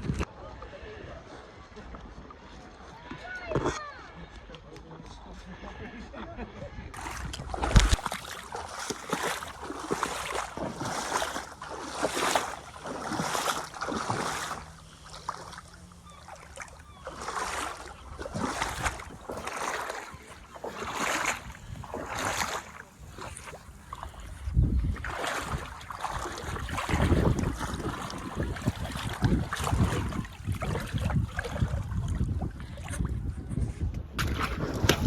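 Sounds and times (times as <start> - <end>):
water splashing and sloshing: 7.0 - 35.0.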